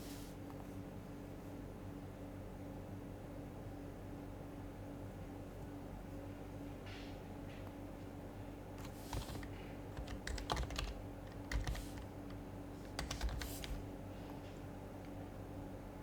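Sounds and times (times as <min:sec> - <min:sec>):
steady low hum: 0:00.0 - 0:16.0
keyboard typing: 0:08.8 - 0:13.8.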